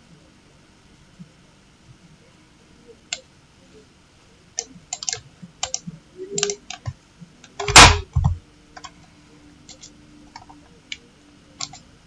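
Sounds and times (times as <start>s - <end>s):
keyboard typing: 4.6s - 5.8s, 6.4s - 8.9s, 11.6s - 11.8s
heavy thump: 7.6s - 8.4s.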